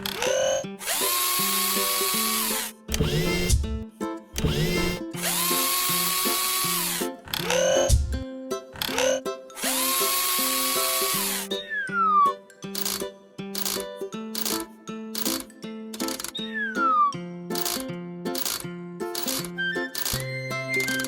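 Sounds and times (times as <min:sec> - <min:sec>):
cartoon power drill whirring: 0:00.0 - 0:03.6, 0:04.4 - 0:08.2, 0:08.8 - 0:12.2, 0:12.8 - 0:13.0, 0:13.6 - 0:17.8, 0:18.4 - 0:21.0
children's background music: 0:01.7 - 0:21.0
falling whistle: 0:11.6 - 0:12.4, 0:16.4 - 0:17.2, 0:19.6 - 0:21.0.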